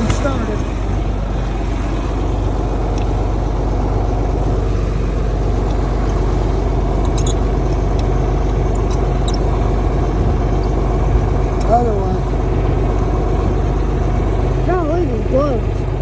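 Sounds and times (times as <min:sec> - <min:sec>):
engine humming: 0:00.0 - 0:16.0
faint high clicks or squeaks: 0:08.7 - 0:09.5.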